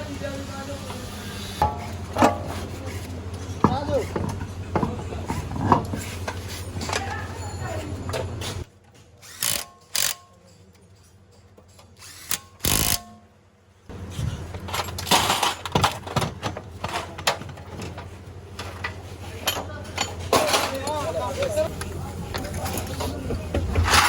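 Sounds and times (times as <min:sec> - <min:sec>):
power tool: 0:09.2 - 0:10.2, 0:12.0 - 0:13.2.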